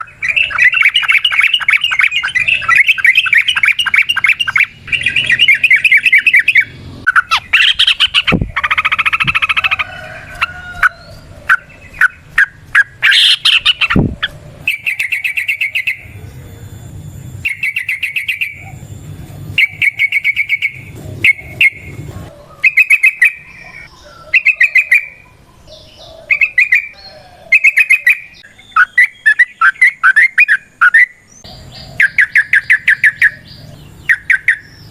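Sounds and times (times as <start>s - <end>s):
bird chattering trill: 0.0s - 34.9s.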